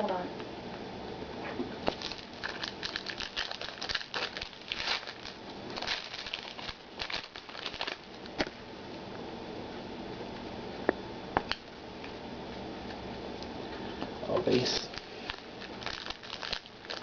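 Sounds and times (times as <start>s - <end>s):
foil wrapper crinkling: 1.9s - 8.6s, 14.5s - 17.0s.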